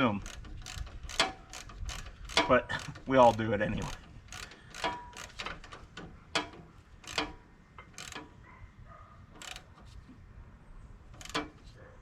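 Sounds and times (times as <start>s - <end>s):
ratchet wrench clicking: 0.0s - 8.4s, 9.4s - 10.0s, 11.1s - 11.7s.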